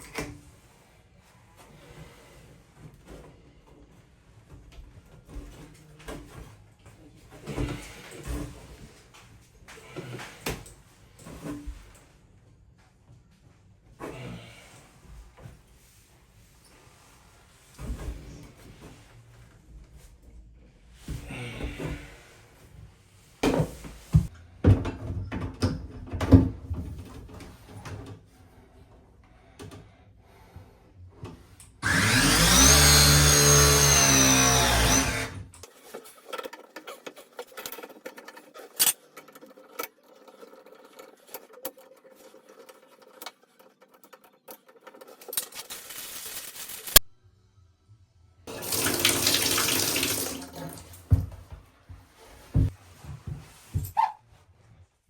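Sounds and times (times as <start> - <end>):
power drill spinning: 31.8 - 35.6.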